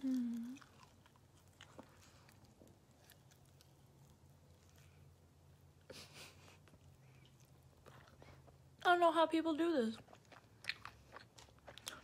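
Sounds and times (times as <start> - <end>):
person humming: 0.0 - 0.6
chewing and mouth clicks: 0.0 - 5.1, 6.6 - 8.9, 10.0 - 12.0.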